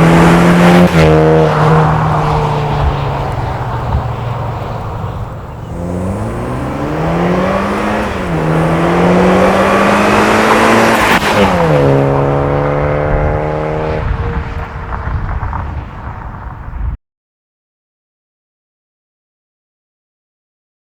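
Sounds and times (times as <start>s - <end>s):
car engine accelerating hard: 0.0s - 15.9s.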